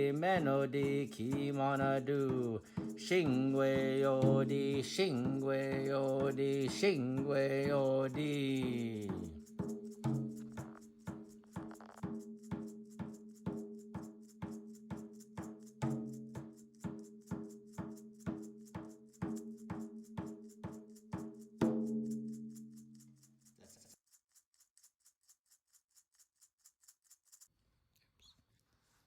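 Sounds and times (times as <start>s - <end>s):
ringing percussion beat: 0.0s - 23.1s.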